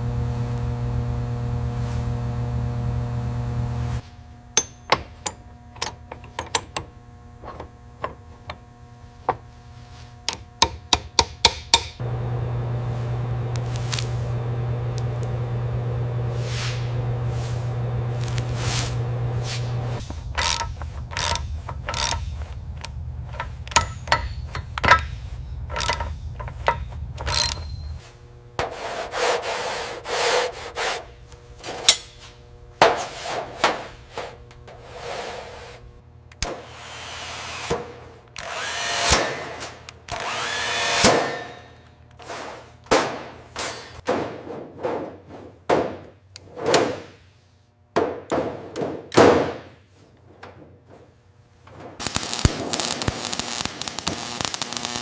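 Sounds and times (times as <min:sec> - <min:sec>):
low hum with knocks: 0:00.0 - 0:28.8
tool scraping: 0:16.1 - 0:44.0
power tool bursts: 0:18.1 - 0:25.1, 0:38.4 - 0:41.8, 0:52.0 - 0:55.0.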